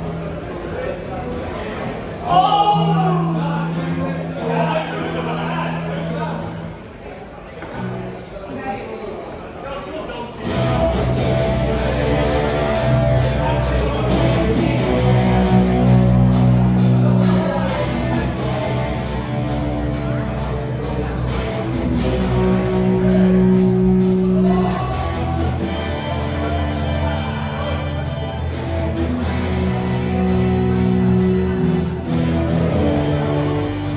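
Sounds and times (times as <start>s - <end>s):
crowd chatter: 0.0s - 33.9s
rock band playing live: 10.4s - 33.9s
cymbal strikes: 10.5s - 33.9s.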